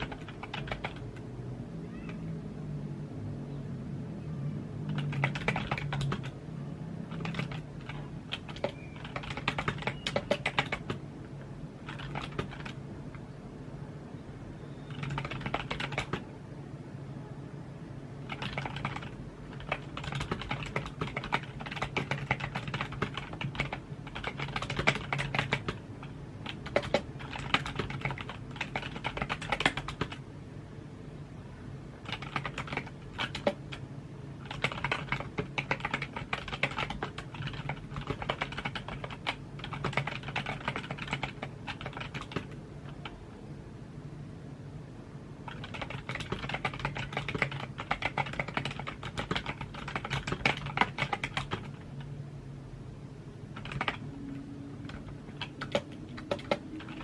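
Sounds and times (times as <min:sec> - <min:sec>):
keyboard keystroke clicks: 0:07.1 - 0:11.0, 0:54.8 - 0:57.0.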